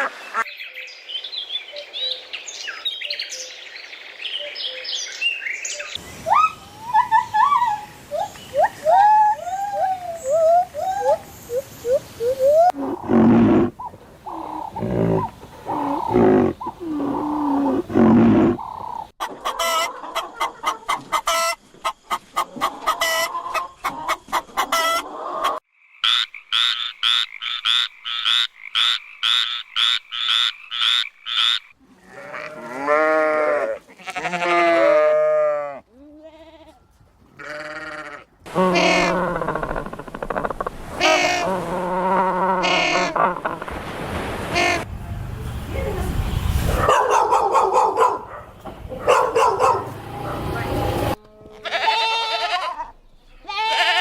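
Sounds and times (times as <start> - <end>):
animal bleat-like calls: 31.9 - 36.8, 37.4 - 39.9, 51.3 - 54.0.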